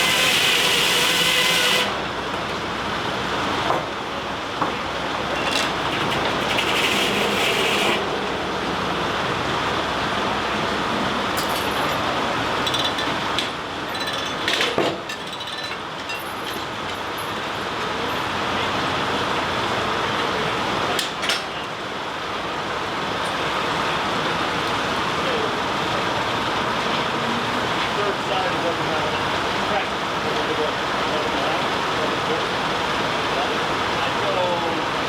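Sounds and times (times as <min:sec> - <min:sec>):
saw high whine: 0:00.0 - 0:02.1
mill clatter: 0:05.3 - 0:08.1
knocks and clinks: 0:13.9 - 0:16.7.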